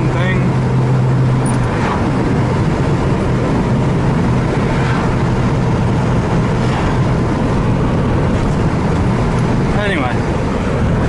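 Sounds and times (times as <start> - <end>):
car engine running: 0.0 - 11.0
road noise: 0.0 - 11.0.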